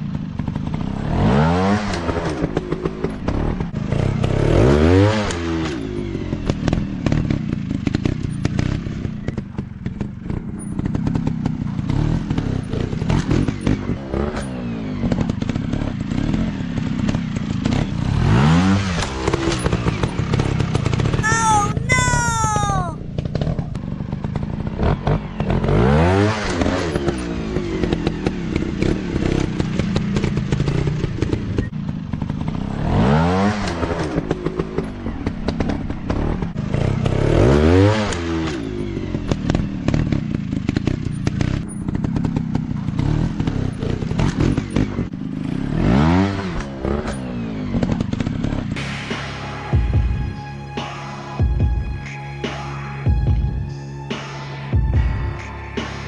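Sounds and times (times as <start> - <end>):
person shouting: 21.2 - 23.0
off-road motorcycle engines revving: 24.3 - 48.8.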